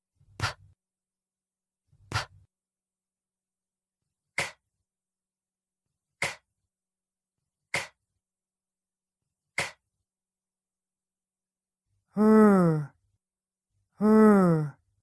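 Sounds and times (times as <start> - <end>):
person making breathy k sound: 0.2 - 0.8, 2.0 - 2.5, 12.1 - 13.0, 14.0 - 14.8.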